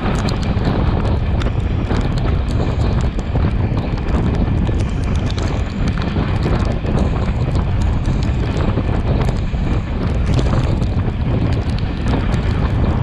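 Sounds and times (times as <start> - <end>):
train heavy rumble: 0.0 - 13.0
wheel clicks on rails: 0.0 - 13.0.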